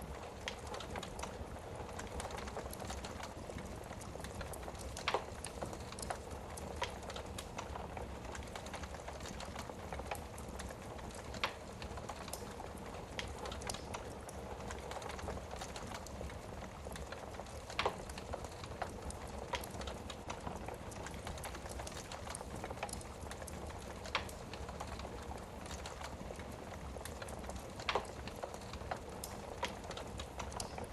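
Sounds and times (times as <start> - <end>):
fire burning with low rush: 0.0 - 30.9
fire crackling and popping: 0.0 - 30.9.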